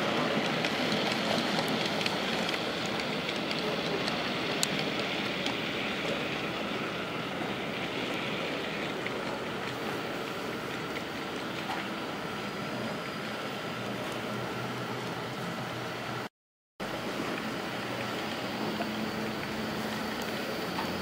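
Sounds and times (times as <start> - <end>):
light clicks of train wheels: 0.0 - 12.3, 17.0 - 21.0
model train rumbling on track: 0.0 - 21.0.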